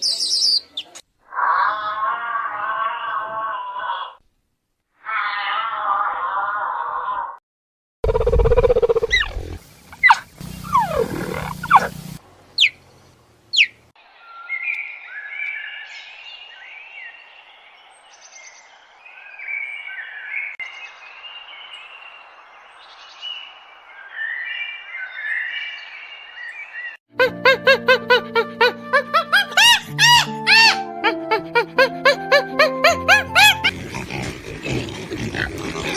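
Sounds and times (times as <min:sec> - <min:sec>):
repeated chirping calls: 0:00.0 - 0:01.0, 0:08.1 - 0:12.8, 0:13.5 - 0:13.8, 0:27.2 - 0:33.7
animal calls sweeping in pitch: 0:08.1 - 0:12.0
loud low animal call: 0:08.1 - 0:12.0.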